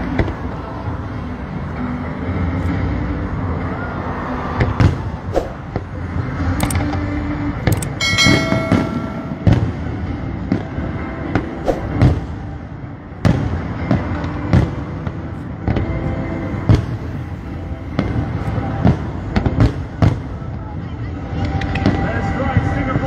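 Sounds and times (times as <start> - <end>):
steady background din: 0.0 - 22.4
fireworks bursting with bangs: 17.9 - 20.4.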